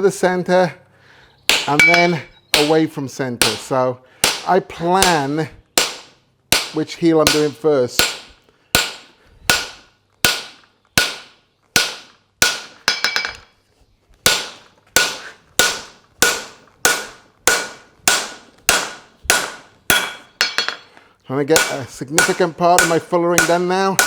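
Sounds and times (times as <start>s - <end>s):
hammer ringing on metal tool: 1.5s - 2.7s, 16.2s - 20.9s, 21.6s - 24.0s.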